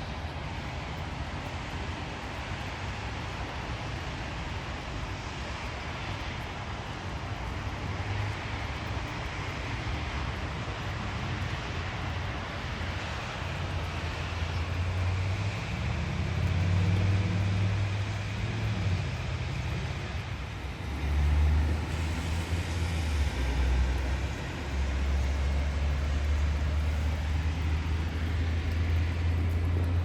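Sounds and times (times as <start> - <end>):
distant traffic rumble: 0.0 - 30.0
rain hissing: 5.4 - 30.0
vehicle engine passing: 20.7 - 30.0.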